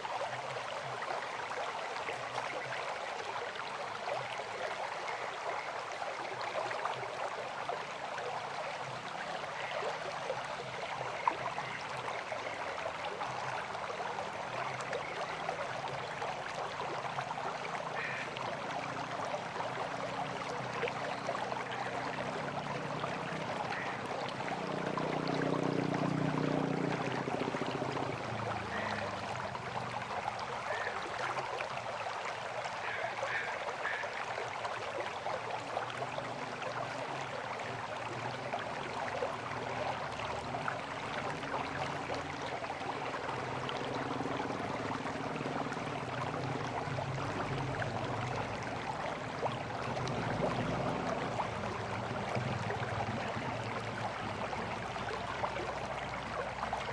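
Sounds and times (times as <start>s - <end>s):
river water flowing: 0.0s - 56.9s
low engine hum: 22.0s - 30.1s, 39.4s - 56.8s.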